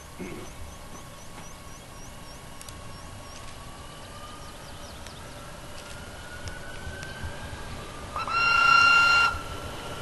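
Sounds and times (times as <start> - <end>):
electric train motor whine: 0.6 - 10.0
train horn: 8.1 - 9.5.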